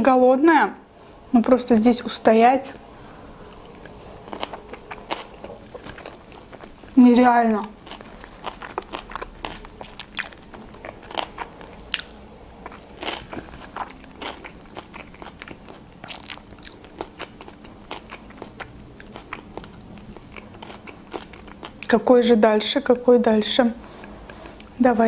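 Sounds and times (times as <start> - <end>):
chewing food: 3.4 - 22.0.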